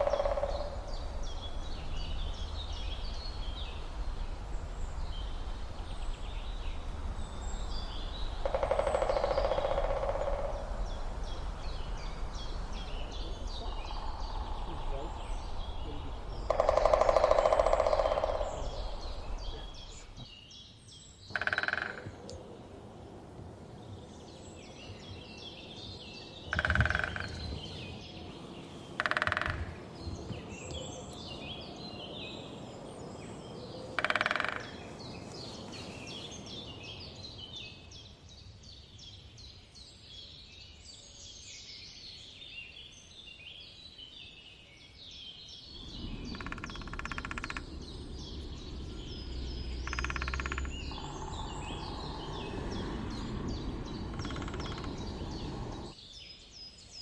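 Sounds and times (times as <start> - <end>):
woodpecker drumming: 0.0 - 1.4, 8.3 - 11.4, 13.6 - 20.2, 21.3 - 22.4, 26.4 - 28.2, 28.9 - 30.8, 34.0 - 35.0, 45.8 - 56.0
small birds chirping: 0.0 - 57.0.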